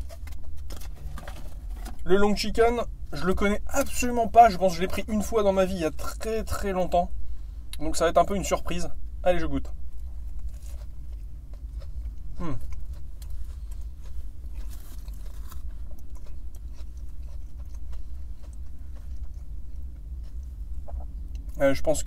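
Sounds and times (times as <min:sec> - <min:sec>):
person chewing food: 0:09.9 - 0:21.6.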